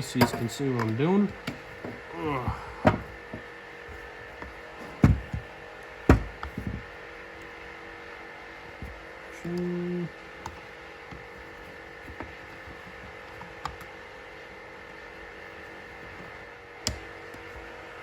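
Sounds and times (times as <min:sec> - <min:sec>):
steady background hum: 0:00.0 - 0:18.0
metal tools clicking and tapping: 0:00.1 - 0:01.0.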